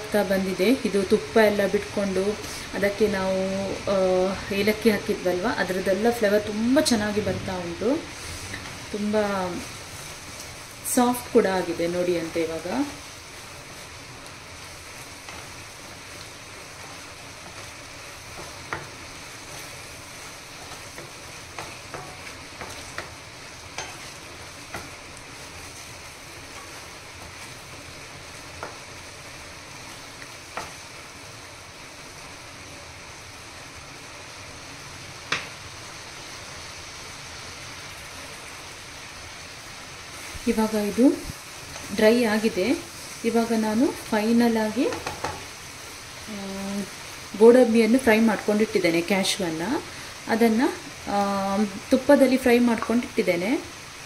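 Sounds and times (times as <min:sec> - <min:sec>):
halwa sizzling in ghee: 0:00.0 - 0:54.0.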